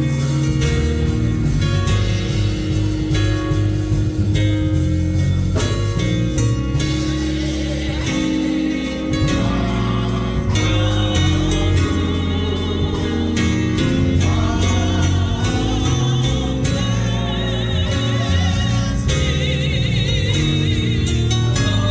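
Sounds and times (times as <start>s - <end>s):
band with bass guitar and drums: 0.0s - 21.9s
choir singing: 6.8s - 21.9s.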